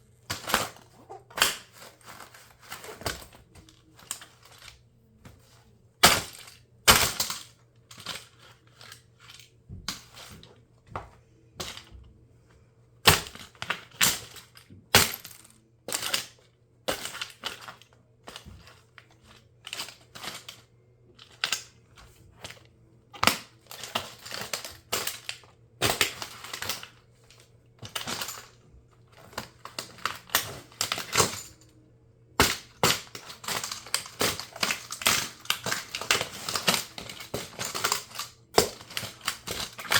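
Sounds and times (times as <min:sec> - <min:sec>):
plastic toy car cracking: 0:00.3 - 0:04.8, 0:06.0 - 0:10.5, 0:23.2 - 0:27.0, 0:29.2 - 0:31.7, 0:32.4 - 0:39.9.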